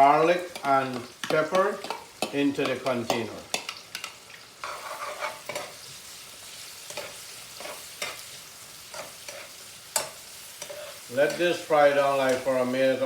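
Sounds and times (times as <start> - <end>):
onion sizzling in oil: 0.0 - 13.0
utensil scraping pot: 0.5 - 5.9, 6.9 - 8.2.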